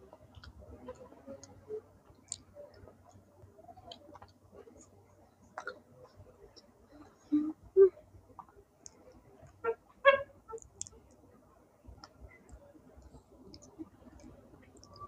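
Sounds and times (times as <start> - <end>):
mouth clicks: 12.0 - 15.0.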